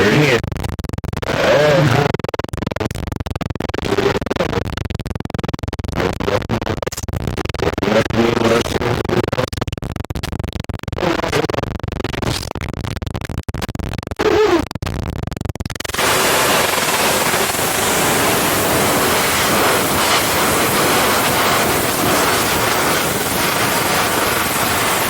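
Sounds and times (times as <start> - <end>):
glitchy pitched fragments: 15.8 - 25.0
harsh choppy scratching: 15.8 - 25.0.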